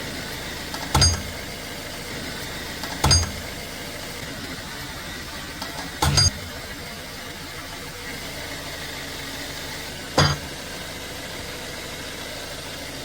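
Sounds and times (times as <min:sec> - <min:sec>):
suspension knocking: 0:00.7 - 0:01.4, 0:02.8 - 0:03.6.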